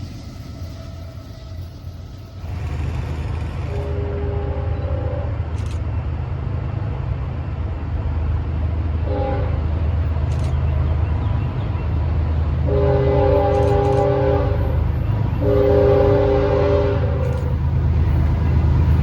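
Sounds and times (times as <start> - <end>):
passing train rumble: 0.0 - 19.0
train horn blasts: 3.6 - 5.6, 9.0 - 9.8, 12.6 - 17.6.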